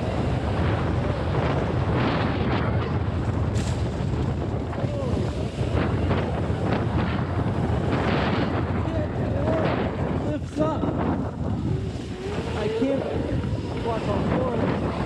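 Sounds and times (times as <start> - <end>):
wind buffeting microphone: 0.0 - 15.0
electric motor whine: 11.5 - 15.0.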